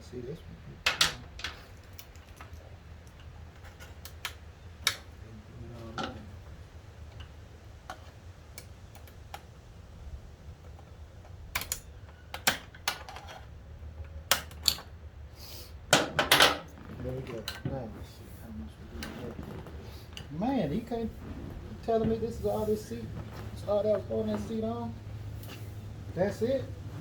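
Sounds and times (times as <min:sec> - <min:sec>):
steady low hum: 0:00.0 - 0:27.0
pry tool clicking plastic clips: 0:11.5 - 0:13.1, 0:14.3 - 0:14.9.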